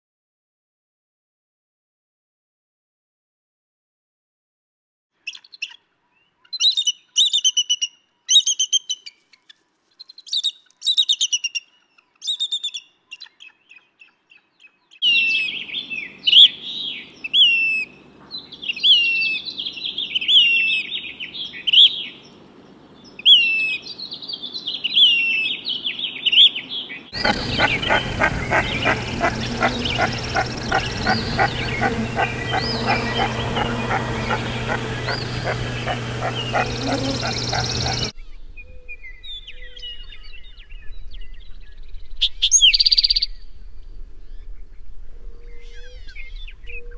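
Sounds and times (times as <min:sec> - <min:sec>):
duck rapid repeated calls: 0:27.2 - 0:38.1.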